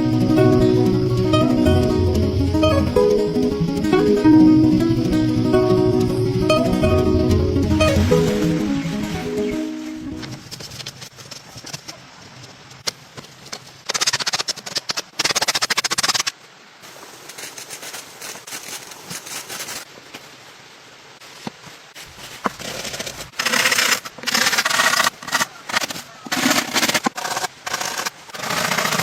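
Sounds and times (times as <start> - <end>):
rapid crackling and scraping: 21.9 - 29.0.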